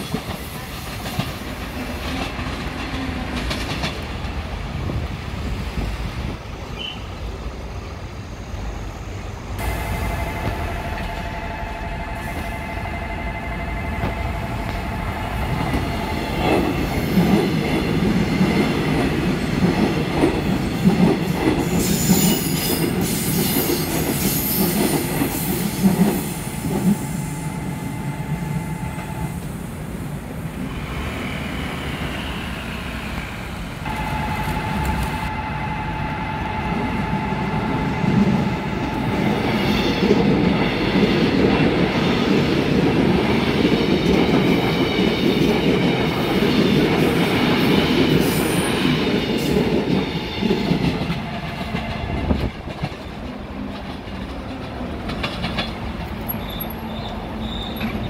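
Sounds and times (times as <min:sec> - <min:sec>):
train wheels rumbling on rails: 0:00.0 - 0:58.0
crossing warning bell ringing: 0:09.6 - 0:16.8, 0:33.9 - 0:39.9.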